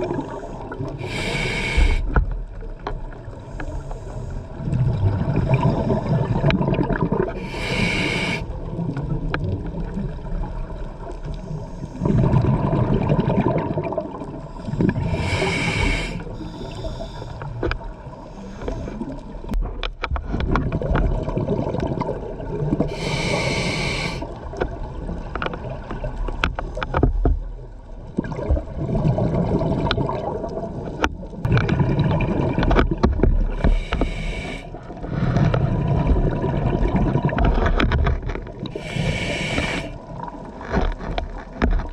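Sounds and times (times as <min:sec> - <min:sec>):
underwater bubbling rumble: 0:00.0 - 0:41.9
regulator hiss: 0:01.0 - 0:02.1, 0:07.4 - 0:08.5, 0:15.0 - 0:17.3, 0:22.9 - 0:24.2, 0:33.6 - 0:34.7, 0:38.8 - 0:40.0.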